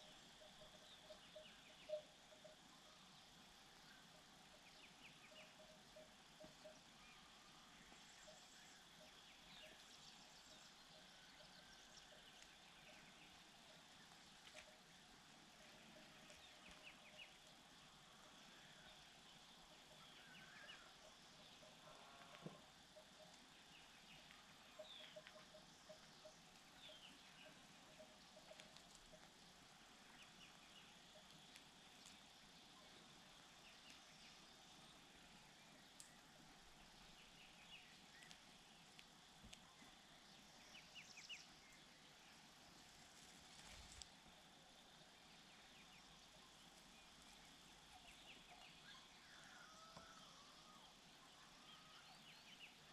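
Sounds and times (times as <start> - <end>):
faint high chirps: 0.0 - 43.0
steady background hiss: 0.0 - 52.9
faint clicks: 11.4 - 17.6, 20.4 - 32.4, 35.8 - 36.2, 36.8 - 40.0.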